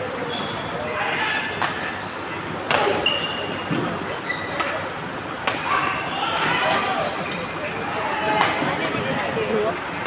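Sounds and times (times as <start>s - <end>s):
voices in large hall: 0.0s - 10.0s
shoes squeaking on court floor: 0.2s - 0.8s, 2.0s - 4.6s
rackets striking shuttlecock: 1.6s - 1.8s, 5.4s - 5.7s.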